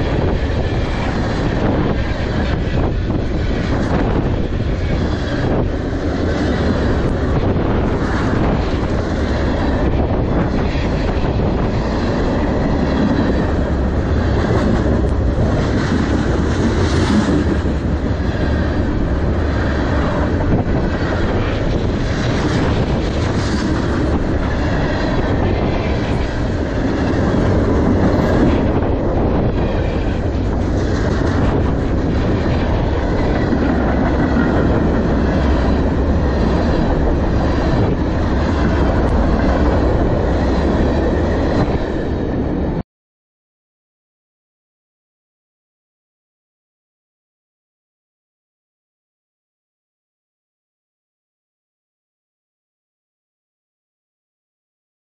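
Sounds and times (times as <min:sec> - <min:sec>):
steel wheels rolling on rails: 0:00.0 - 0:42.8.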